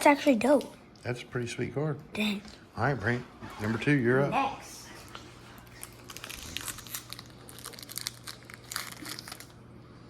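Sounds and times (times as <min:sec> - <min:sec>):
foil wrapper crinkling and tearing: 0:05.6 - 0:09.7.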